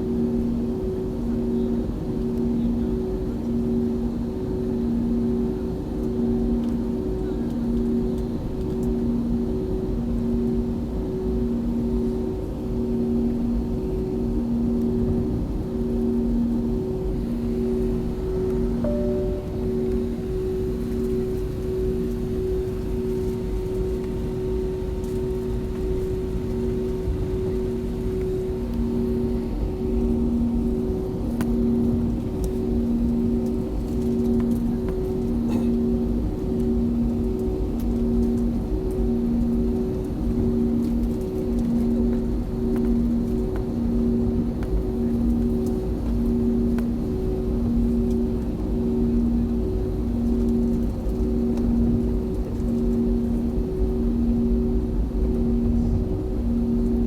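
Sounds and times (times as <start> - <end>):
airplane cabin rumble: 14.8 - 57.0
two-note hum: 17.1 - 22.9.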